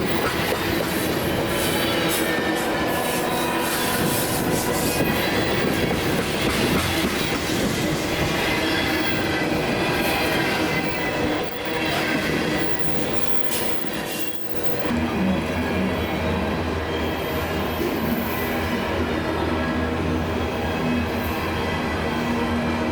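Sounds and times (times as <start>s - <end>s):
high wheel squeal: 0.0s - 14.9s
train wheels rumbling on track: 0.0s - 22.9s.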